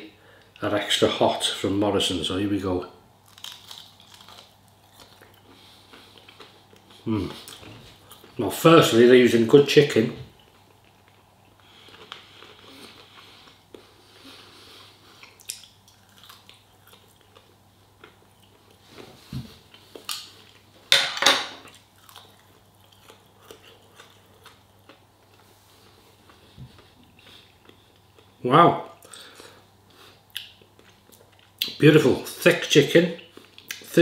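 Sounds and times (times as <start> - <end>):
person chewing crispy food: 3.2 - 8.4, 10.3 - 20.7, 21.6 - 31.7, 33.2 - 33.8.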